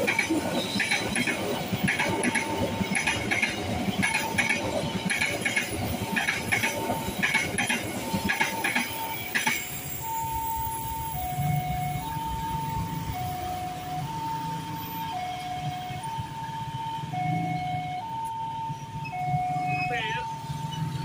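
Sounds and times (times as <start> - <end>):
train wheels clattering: 0.0 - 10.0
level crossing warning tone: 0.0 - 21.0.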